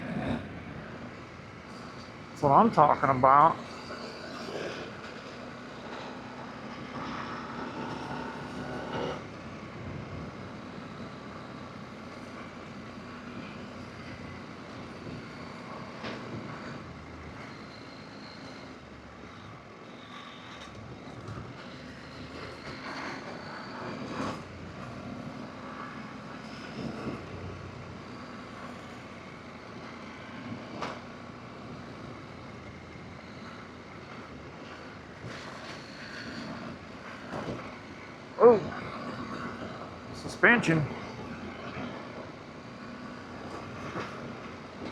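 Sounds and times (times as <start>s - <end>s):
motorcycle engine revving: 3.6s - 9.6s.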